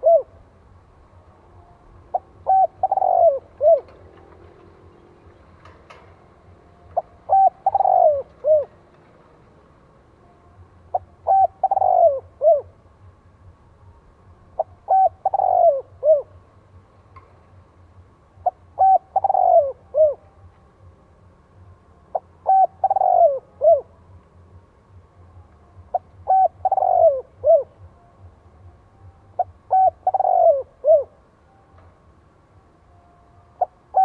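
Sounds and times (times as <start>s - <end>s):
dove cooing song: 0.0s - 0.8s, 1.4s - 9.7s, 10.6s - 13.1s, 14.3s - 17.3s, 18.3s - 21.0s, 21.6s - 24.2s, 25.7s - 31.9s, 33.4s - 34.0s.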